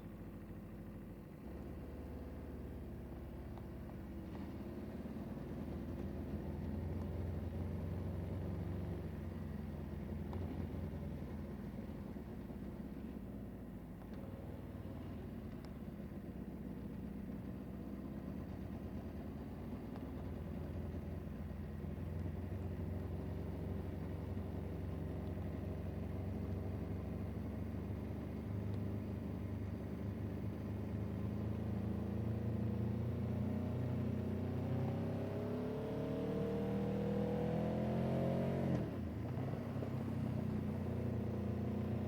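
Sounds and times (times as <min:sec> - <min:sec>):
vehicle engine running: 0:00.0 - 0:42.0.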